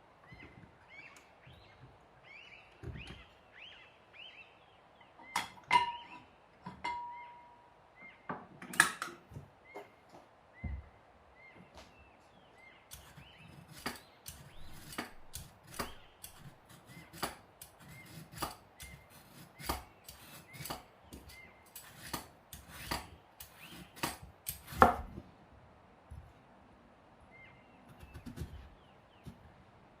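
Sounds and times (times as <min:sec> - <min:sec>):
knife chopping on wooden board: 0:18.0 - 0:21.3, 0:21.9 - 0:25.1.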